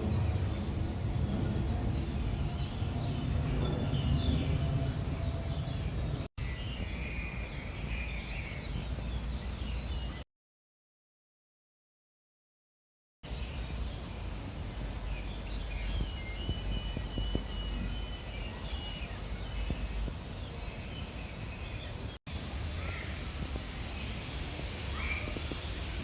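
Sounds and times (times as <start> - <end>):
birds chirping and whistling: 0.1 - 10.2, 15.2 - 20.1.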